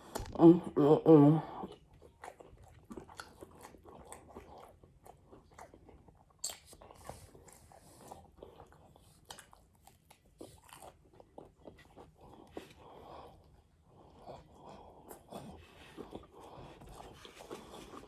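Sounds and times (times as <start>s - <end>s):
chewing and crunching food: 1.4s - 18.0s.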